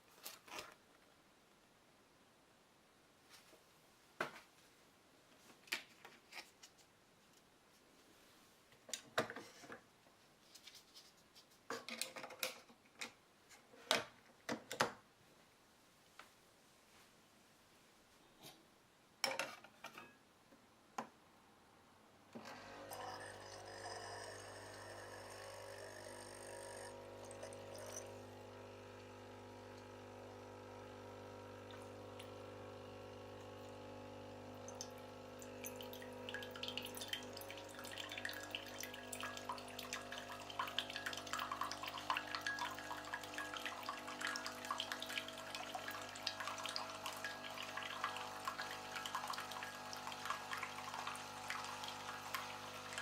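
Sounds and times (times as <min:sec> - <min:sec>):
pump humming: 0:22.4 - 0:53.0
liquid trickling into cup: 0:22.8 - 0:29.2, 0:34.6 - 0:53.0.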